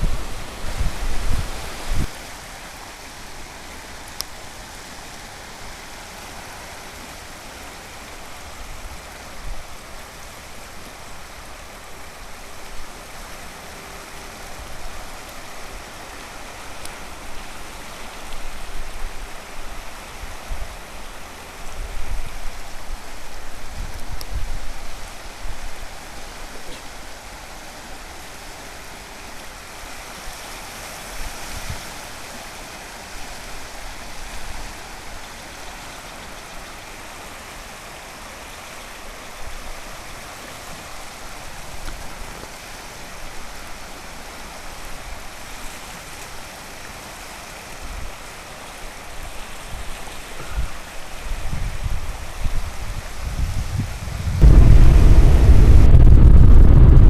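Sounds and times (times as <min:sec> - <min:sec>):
river rushing: 0:00.0 - 0:57.0
low rumbles: 0:54.1 - 0:57.0.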